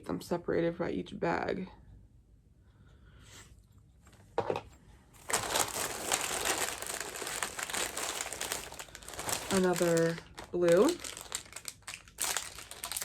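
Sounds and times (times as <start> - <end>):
packaging crinkling: 5.2 - 13.0.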